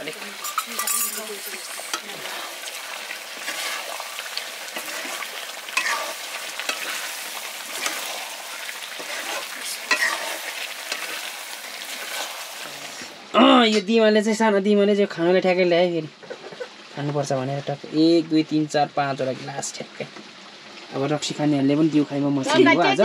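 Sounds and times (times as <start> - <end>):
chicken sizzling in a wok: 0.0 - 13.2
wooden spatula scraping a pan: 3.4 - 4.0, 4.7 - 13.2.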